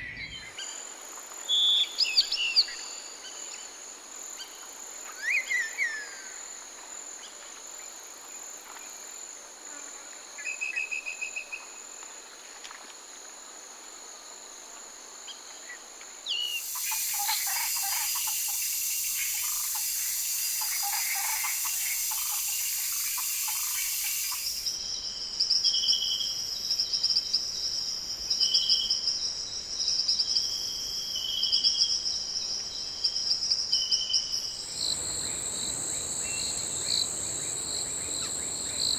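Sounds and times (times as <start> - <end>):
chirping insects: 13.9 - 38.9
rapid pulsing insect chirps: 16.4 - 26.8, 27.6 - 38.9
bird calls: 16.5 - 24.7, 34.7 - 38.9
falling bird whistles: 16.5 - 24.8
loud high hiss: 16.6 - 24.8, 34.5 - 38.9.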